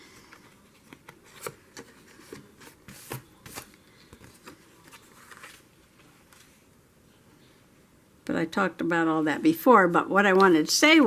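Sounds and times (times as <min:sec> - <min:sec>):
paper rustling: 0:00.2 - 0:06.6.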